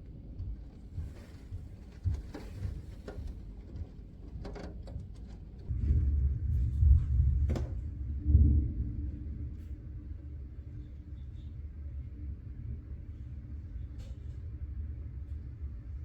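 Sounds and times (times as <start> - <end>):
wind buffeting microphone: 5.7 - 9.6.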